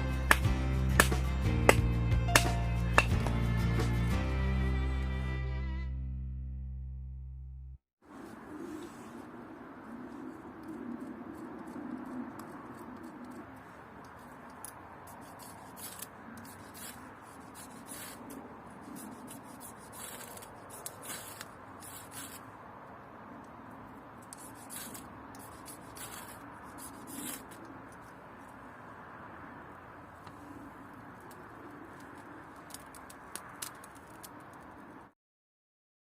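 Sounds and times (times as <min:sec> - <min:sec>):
scraping strokes on wood: 0:10.6 - 0:22.5, 0:24.2 - 0:28.2.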